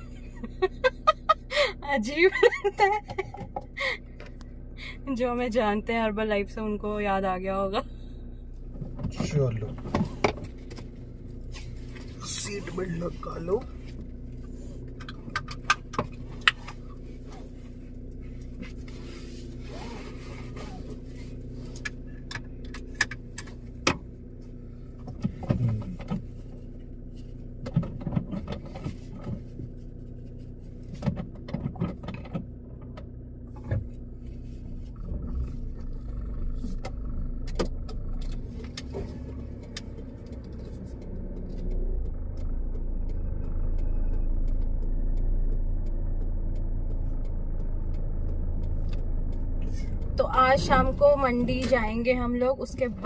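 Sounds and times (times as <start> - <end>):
car engine running: 0.0 - 53.0
low rumble: 0.0 - 53.0
sharp clicks and knocks: 14.9 - 16.8, 27.6 - 29.6, 30.9 - 34.0.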